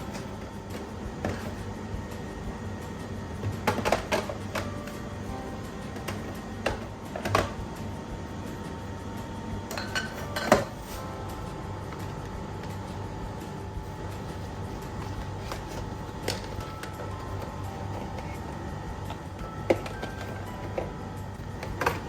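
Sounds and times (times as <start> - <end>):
steady low hum: 0.0 - 22.0
containers knocking on fridge shelves: 3.4 - 5.0.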